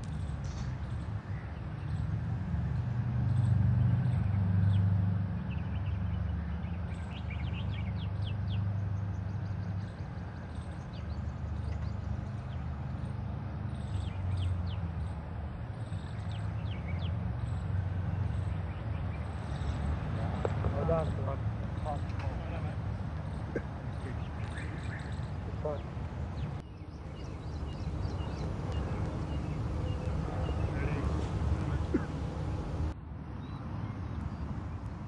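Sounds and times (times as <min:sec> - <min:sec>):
birds chirping: 0:00.0 - 0:35.0
low outdoor rumble: 0:11.0 - 0:33.0.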